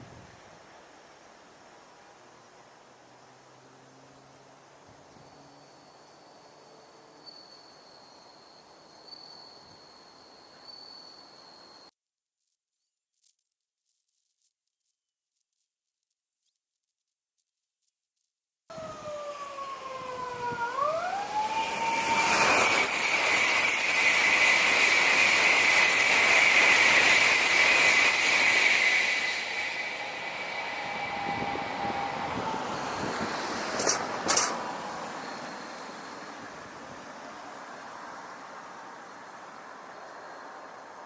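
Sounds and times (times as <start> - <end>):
high-speed train passing: 0.0 - 11.9, 18.7 - 41.0
gliding whistle-like tones: 5.0 - 11.9, 18.7 - 41.0.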